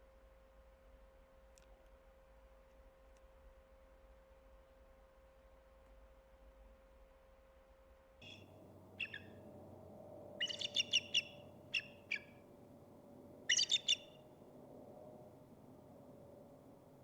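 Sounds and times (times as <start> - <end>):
faint steady hum: 8.2 - 17.0
songbird chirping: 8.2 - 17.0.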